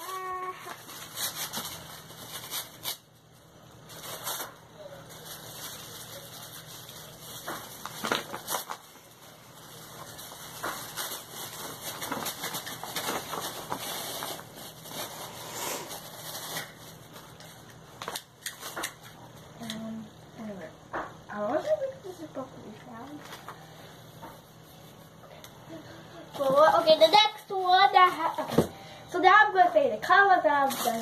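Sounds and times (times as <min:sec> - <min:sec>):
packaging crinkling and rustling: 0:00.0 - 0:19.5, 0:30.5 - 0:31.0.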